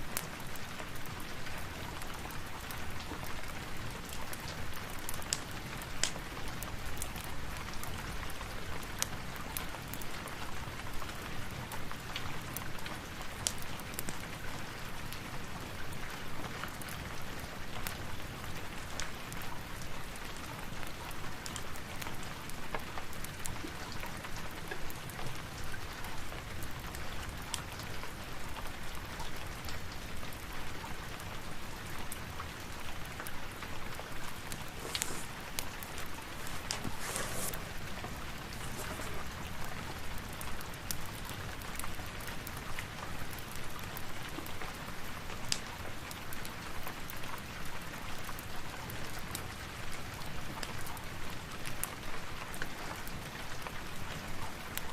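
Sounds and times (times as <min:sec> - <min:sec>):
steady rain: 0:00.0 - 0:54.9
fire popping: 0:33.7 - 0:41.9.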